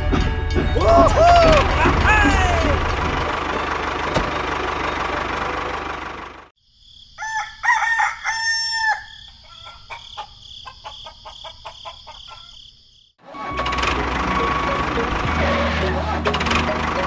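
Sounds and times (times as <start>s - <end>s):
rooster crowing: 7.1s - 12.7s.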